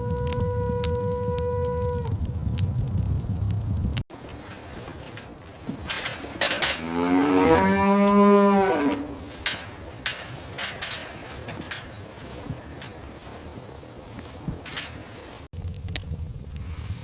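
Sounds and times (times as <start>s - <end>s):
cow mooing: 5.9s - 13.0s.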